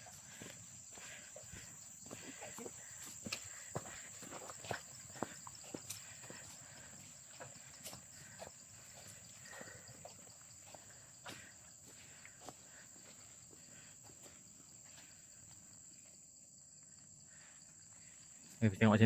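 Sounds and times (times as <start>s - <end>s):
forest insects droning: 0.0s - 19.0s.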